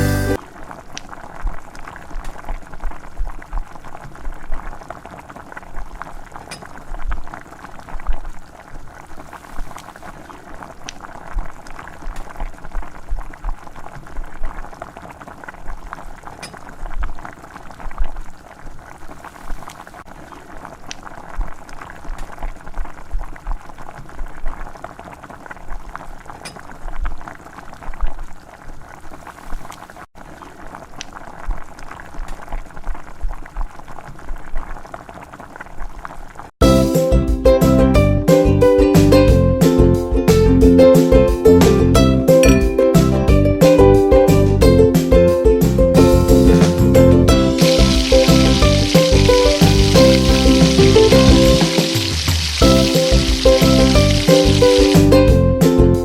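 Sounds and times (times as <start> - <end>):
liquid bubbling at a boil: 0.4 - 36.6, 47.3 - 55.2.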